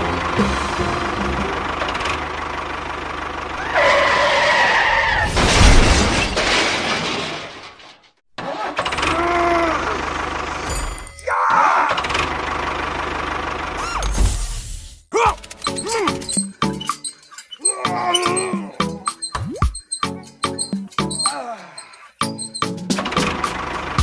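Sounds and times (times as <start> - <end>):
vehicle engine running: 0.0 - 4.7, 8.9 - 11.1, 12.0 - 13.9, 22.8 - 24.0.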